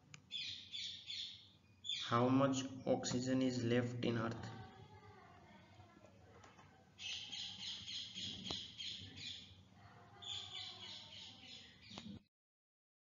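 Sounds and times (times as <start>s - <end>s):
bird chirping: 0.2s - 3.0s, 7.0s - 12.2s.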